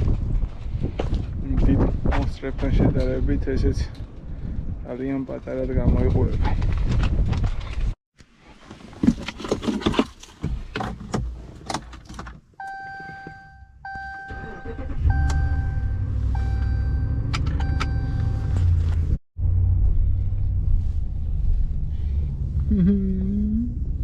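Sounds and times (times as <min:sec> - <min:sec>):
car engine starting and idling: 0:11.7 - 0:23.2
car warning chime: 0:12.6 - 0:18.6.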